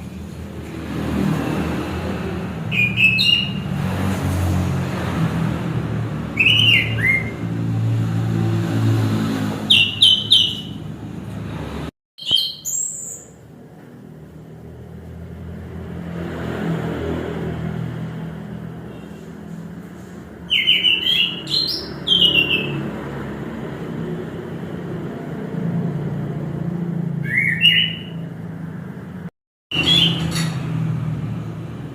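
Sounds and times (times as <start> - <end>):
thrush singing whistled phrases: 2.7 - 3.6, 6.4 - 7.4, 9.7 - 10.8, 12.2 - 13.4, 20.4 - 22.8, 27.2 - 28.2.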